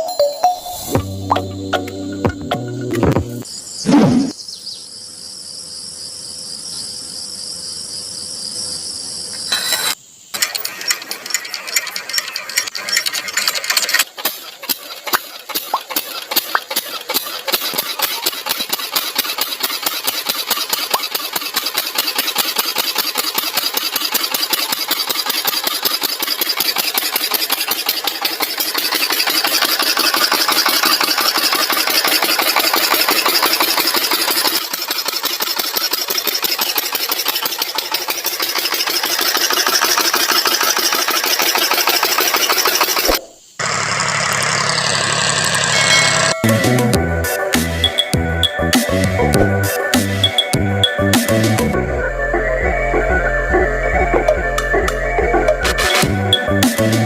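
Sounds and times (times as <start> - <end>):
small motor clattering: 9.4 - 46.4.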